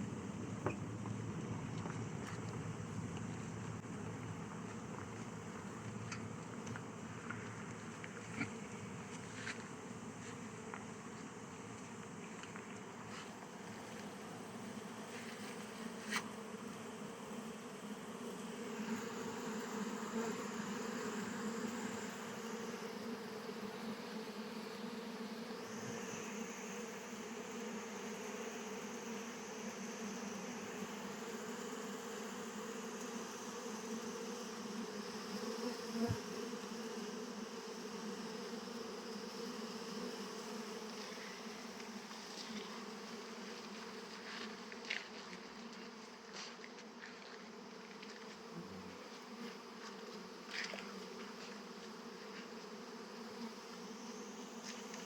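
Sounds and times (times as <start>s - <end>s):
honeybees buzzing: 3.9s - 55.0s.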